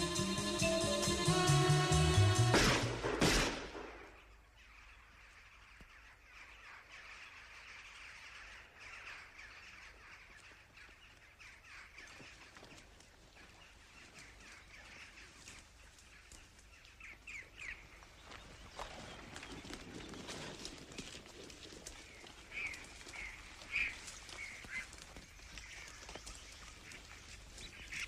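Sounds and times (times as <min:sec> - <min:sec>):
faint bird calls and chirping: 0:21.9 - 0:28.0.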